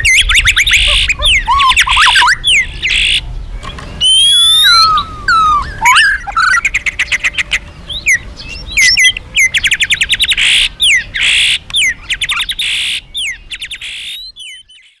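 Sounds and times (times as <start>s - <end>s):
songbird whistles and trills: 0.0s - 15.0s.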